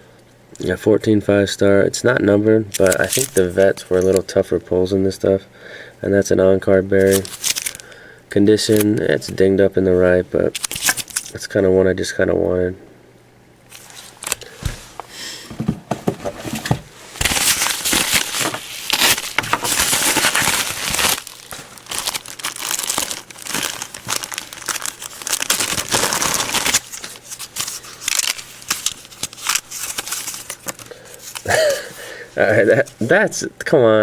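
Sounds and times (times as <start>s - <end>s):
packaging crinkling and tearing: 2.7s - 4.2s, 7.0s - 7.9s, 10.5s - 11.4s, 16.4s - 32.1s.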